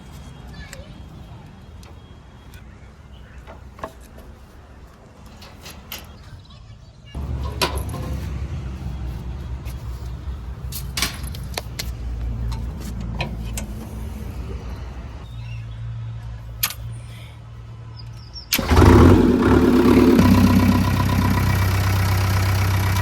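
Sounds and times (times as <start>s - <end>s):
heavy vehicle engine idling: 7.2s - 15.2s, 18.6s - 23.0s.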